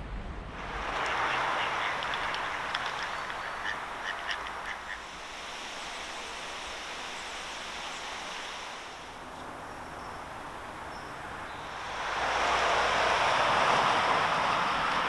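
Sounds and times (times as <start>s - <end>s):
ducks quacking: 0.6s - 7.0s
outdoor hiss: 0.6s - 15.0s.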